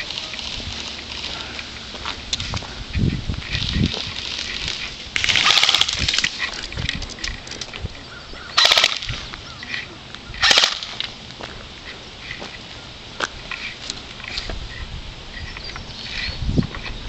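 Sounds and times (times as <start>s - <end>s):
airsoft gun firing bursts: 5.2s - 6.2s, 8.6s - 9.2s, 10.4s - 11.0s.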